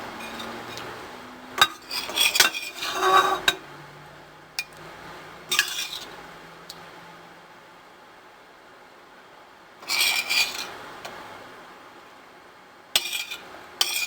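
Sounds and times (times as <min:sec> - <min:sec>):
utensils clinking on dishes: 0:00.1 - 0:00.9, 0:01.6 - 0:03.6, 0:05.5 - 0:06.2, 0:13.0 - 0:14.0.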